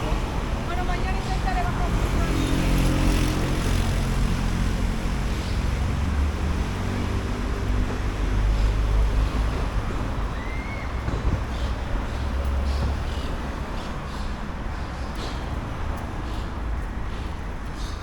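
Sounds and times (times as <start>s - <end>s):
vehicle engine running close by: 0.0s - 10.2s
city noise: 0.0s - 18.0s.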